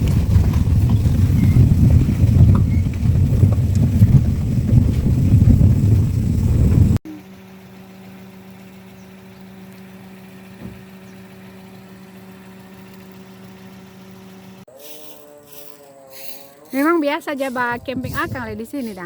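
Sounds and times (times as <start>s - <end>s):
motor humming: 6.5s - 19.0s.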